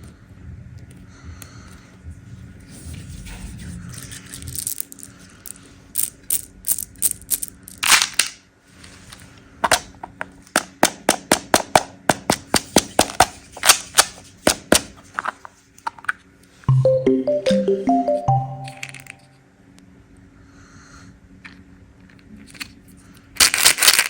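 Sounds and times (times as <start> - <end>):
hard candies clicking and crunching: 22.1 - 24.0.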